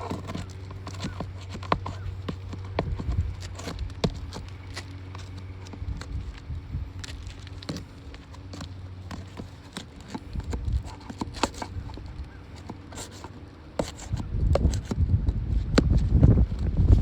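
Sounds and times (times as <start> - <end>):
clicks taps and scrapes on shingles: 0.0 - 17.0.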